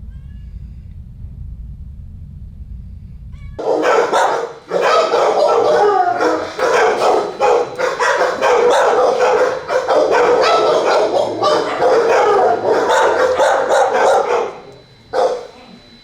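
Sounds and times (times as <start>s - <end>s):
many dogs barking: 3.6s - 15.6s.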